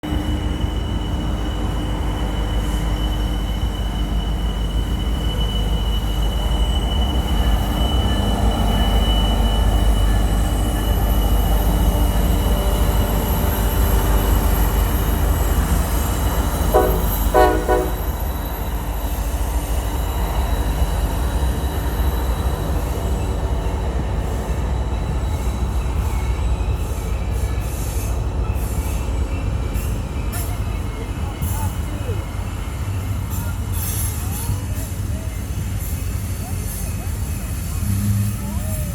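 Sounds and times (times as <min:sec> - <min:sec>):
freight train rumbling: 0:00.0 - 0:38.9
wheel flanges squealing: 0:00.1 - 0:38.9
locomotive horn blasts: 0:16.7 - 0:18.2.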